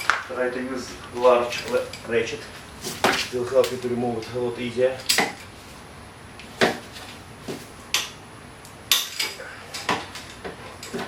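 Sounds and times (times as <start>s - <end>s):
metal hand tools clinking: 8.9s - 11.0s.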